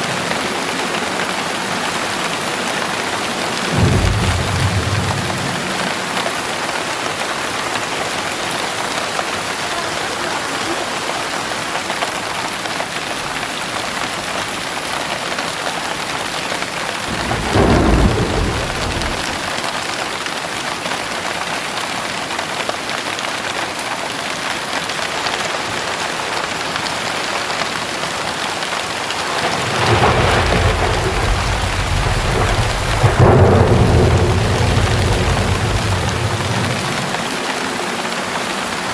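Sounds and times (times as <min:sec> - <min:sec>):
heavy rain falling: 0:00.0 - 0:38.9
thunder rumbling: 0:00.5 - 0:09.6, 0:16.8 - 0:19.8, 0:29.0 - 0:38.7.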